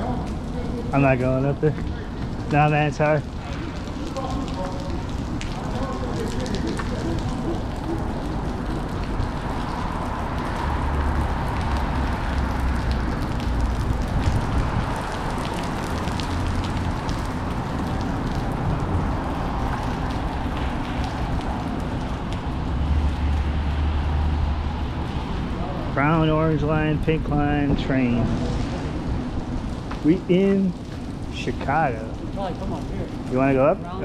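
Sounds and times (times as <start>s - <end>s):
street noise: 0.0s - 34.0s
wind buffeting microphone: 3.3s - 23.5s.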